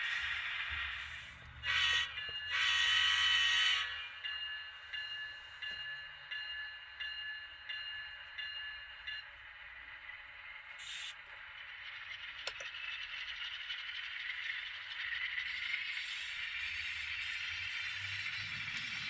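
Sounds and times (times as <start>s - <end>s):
idling diesel hum: 0.0s - 4.0s
locomotive bell ringing: 0.0s - 9.6s
model locomotive horn blasts: 1.6s - 4.2s.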